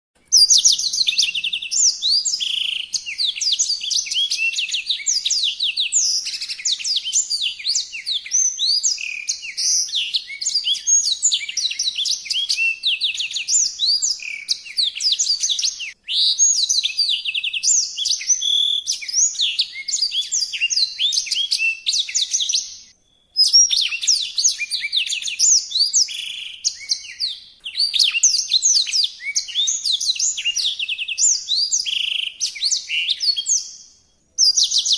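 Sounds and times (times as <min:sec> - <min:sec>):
songbird singing: 0:00.2 - 0:34.9.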